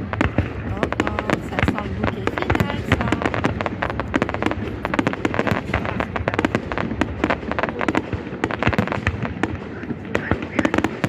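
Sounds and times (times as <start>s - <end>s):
fireworks bangs and pops: 0.0s - 11.0s
low rumble of bursting shells: 0.0s - 11.0s.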